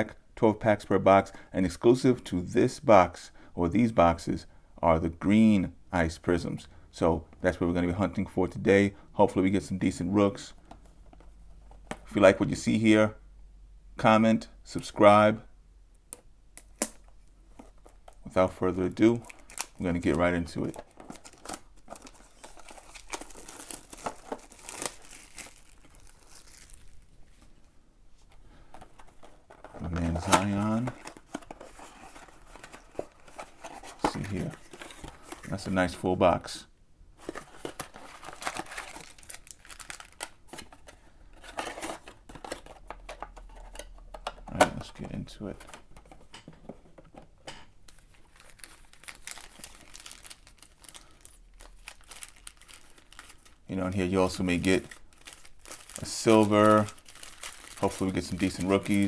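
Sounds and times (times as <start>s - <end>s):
plastic wrap crinkling and tearing: 18.9s - 27.5s, 37.2s - 43.3s, 47.9s - 59.0s.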